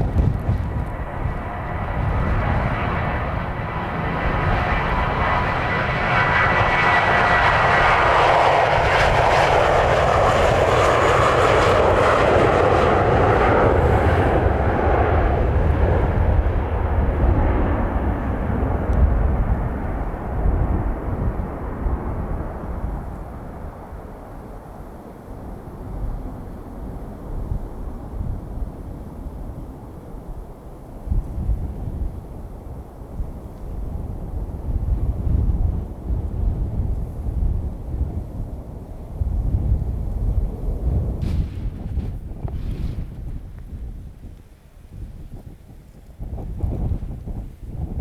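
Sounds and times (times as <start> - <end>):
jet engines roaring: 0.0 - 22.9
wind buffeting microphone: 0.0 - 24.5, 25.4 - 48.0.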